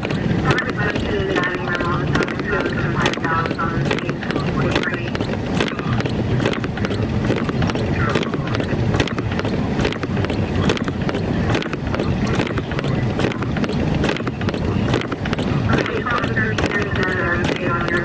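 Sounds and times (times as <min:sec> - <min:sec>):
car cabin rumble: 0:00.0 - 0:18.0.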